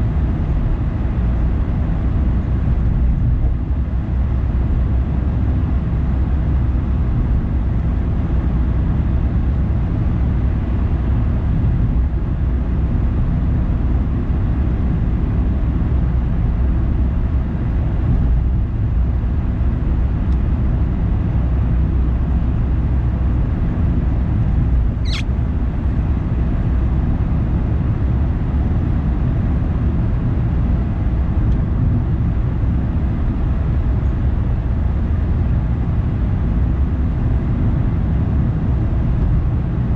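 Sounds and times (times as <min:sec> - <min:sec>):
car road noise and engine: 0:00.0 - 0:39.9
brief high squeak: 0:25.0 - 0:25.4.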